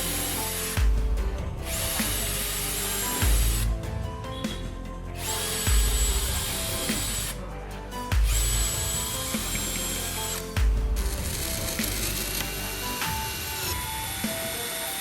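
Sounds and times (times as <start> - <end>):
small power tool running: 0.0 - 0.9, 1.7 - 3.8, 5.2 - 7.4, 8.1 - 15.0
background music with bass hits: 0.0 - 15.0.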